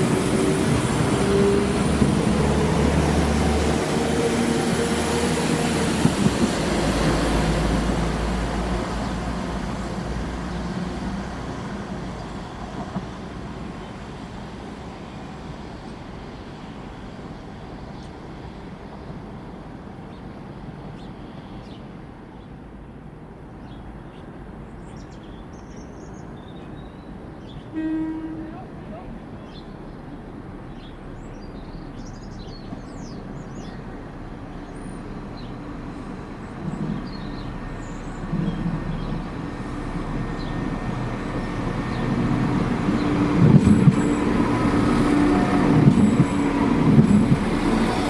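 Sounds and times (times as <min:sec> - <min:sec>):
diesel train engine drone: 0:00.0 - 0:25.2, 0:25.8 - 0:48.0
wheel-on-rail rumble: 0:28.0 - 0:48.0.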